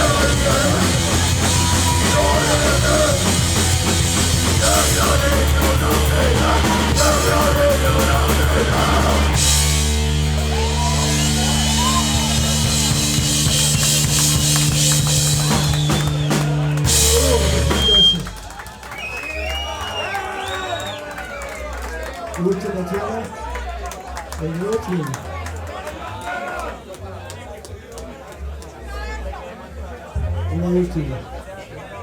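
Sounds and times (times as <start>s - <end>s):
distorted electric guitars: 0.0s - 18.4s
pounding drum kit: 0.0s - 18.9s.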